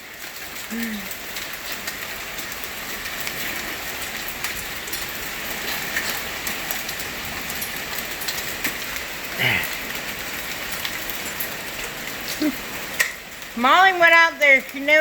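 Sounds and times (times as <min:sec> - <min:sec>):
hailstones striking surfaces: 0:00.0 - 0:15.0.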